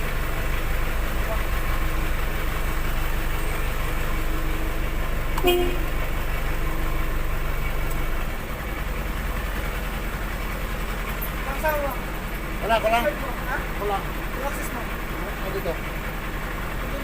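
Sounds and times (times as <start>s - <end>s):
truck engine running: 0.0s - 17.0s
short horn toot: 5.4s - 5.9s.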